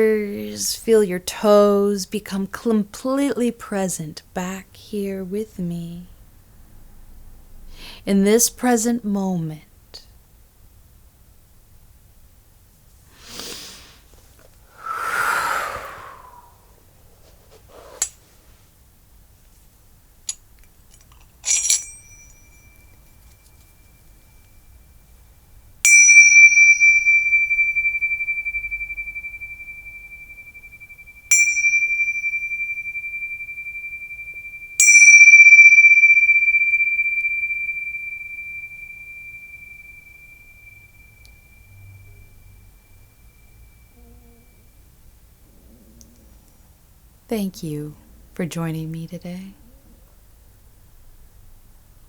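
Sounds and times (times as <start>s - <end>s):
small high-pitched bell ringing: 21.4s - 45.1s.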